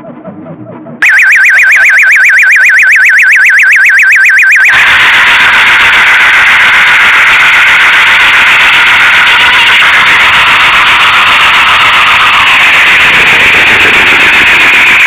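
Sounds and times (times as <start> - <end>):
electronic warbling tone: 0.6 - 15.0
harsh pulsing buzz: 12.2 - 15.0.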